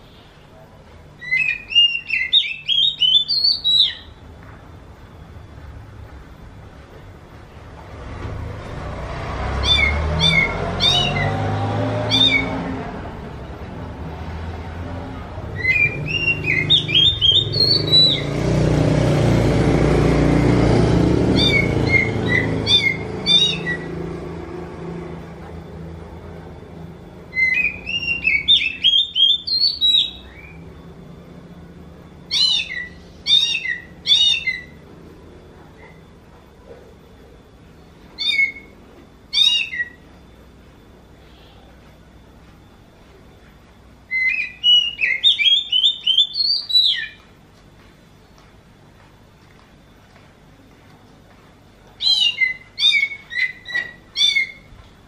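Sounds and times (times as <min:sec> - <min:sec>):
low rumbling background noise: 0:00.0 - 0:55.0
bird mewing calls: 0:09.6 - 0:12.7, 0:21.3 - 0:24.0.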